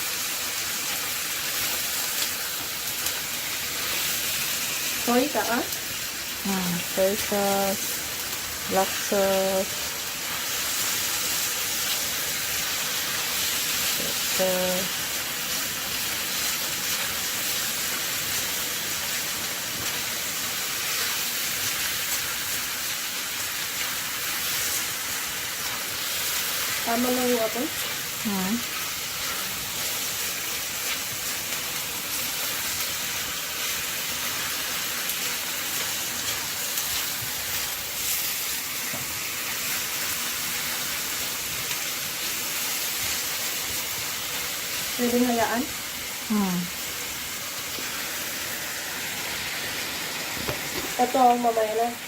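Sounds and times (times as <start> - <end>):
chicken sizzling in hot oil: 0.0 - 52.0
faint crackles: 0.5 - 52.0.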